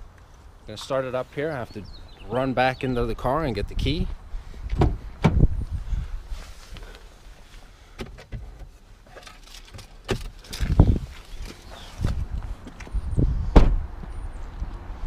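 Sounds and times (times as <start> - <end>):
wind buffeting microphone: 3.5 - 6.4, 10.5 - 15.0
heavy thump: 13.5 - 13.8.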